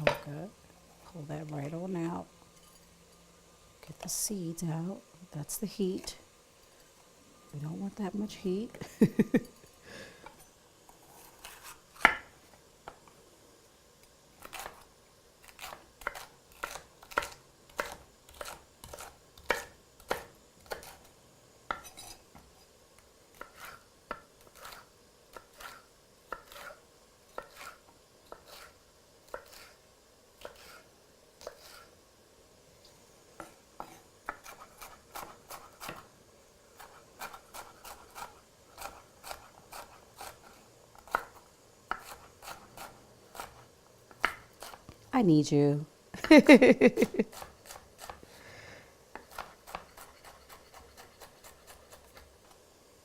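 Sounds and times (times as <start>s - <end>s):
knife chopping on cutting board: 11.4s - 12.3s, 15.5s - 21.0s, 23.4s - 29.7s, 33.4s - 36.0s, 36.8s - 44.8s, 49.1s - 52.3s.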